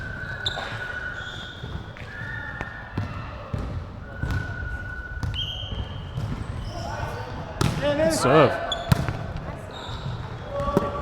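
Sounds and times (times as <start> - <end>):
sneakers squeaking on court: 0.0 - 11.0
volleyball hits: 1.6 - 11.0.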